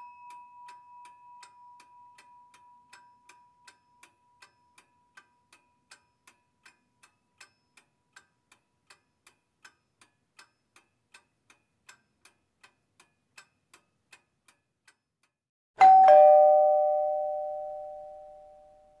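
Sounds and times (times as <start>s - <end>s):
clock ticking: 0.0s - 15.4s
two-note doorbell chime: 15.8s - 19.0s.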